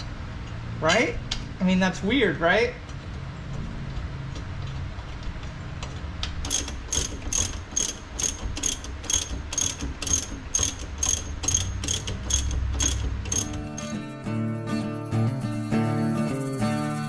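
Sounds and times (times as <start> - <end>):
ratchet wrench clicking: 6.4 - 14.0.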